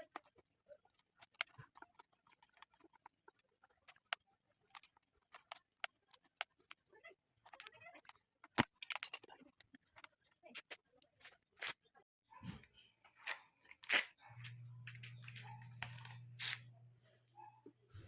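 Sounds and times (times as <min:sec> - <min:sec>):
fan parts clicking and rustling: 0:07.4 - 0:10.8.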